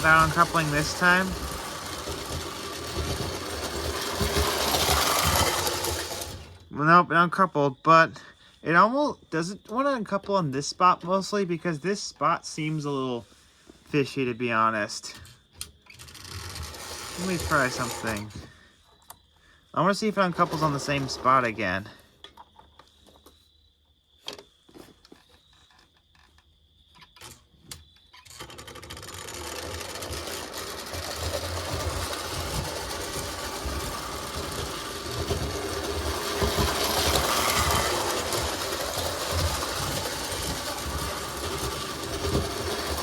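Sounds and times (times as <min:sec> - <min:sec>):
toy train motor whirring: 0:00.0 - 0:06.7, 0:15.0 - 0:18.5, 0:20.0 - 0:21.9, 0:28.2 - 0:43.0.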